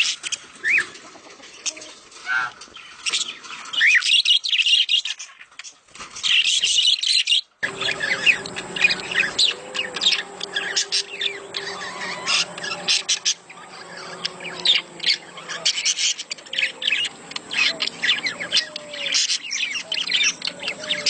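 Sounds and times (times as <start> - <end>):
budgerigars chattering and chirping: 0.0 - 21.0
low steady hum: 7.6 - 21.0.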